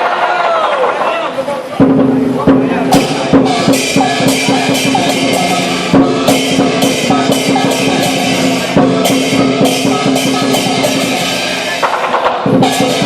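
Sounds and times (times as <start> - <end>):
cymbals clashing: 1.6 - 13.0
large drum beating: 1.8 - 13.0
gong: 2.9 - 13.0.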